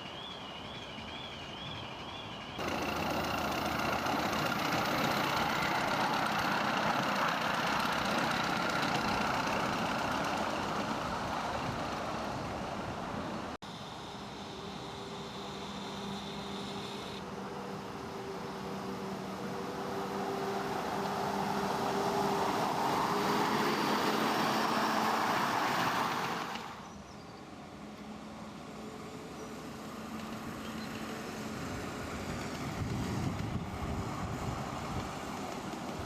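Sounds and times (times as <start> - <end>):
miniature train humming: 0.0 - 13.2.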